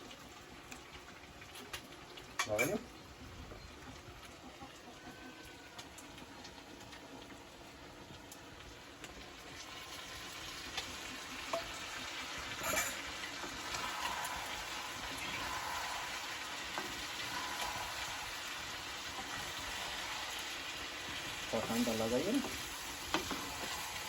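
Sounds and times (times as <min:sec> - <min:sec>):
food frying and sizzling: 0:00.0 - 0:24.0.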